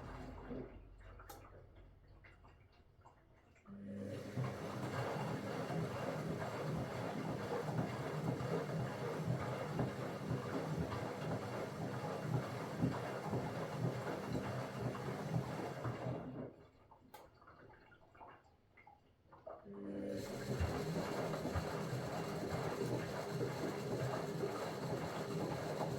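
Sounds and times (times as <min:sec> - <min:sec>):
washing machine motor hum: 0:03.8 - 0:16.6, 0:19.8 - 0:25.9.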